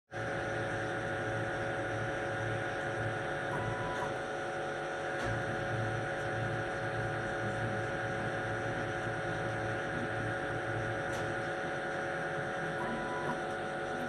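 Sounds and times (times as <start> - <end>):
lathe machine hum: 4.2 - 14.0.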